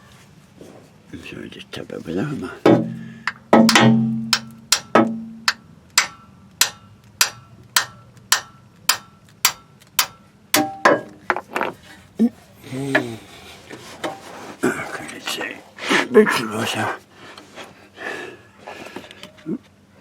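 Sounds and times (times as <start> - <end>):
irregular knocks: 2.7 - 9.0
hammer tapping on metal: 2.7 - 11.4.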